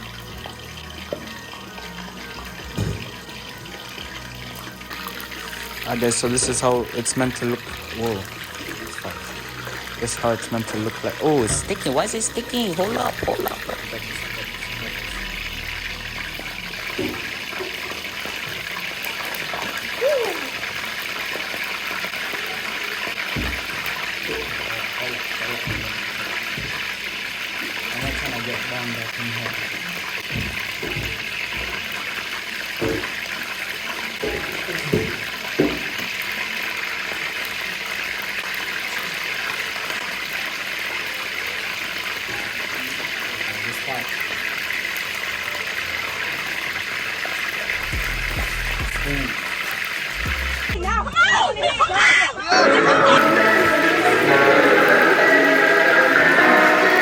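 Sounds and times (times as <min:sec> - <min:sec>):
food frying in hot oil: 0:00.0 - 0:50.8.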